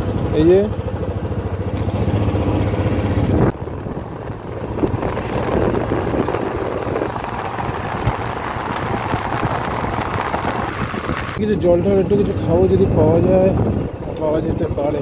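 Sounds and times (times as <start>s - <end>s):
motorcycle engine running: 0.0s - 15.0s
wind rush: 1.8s - 15.0s.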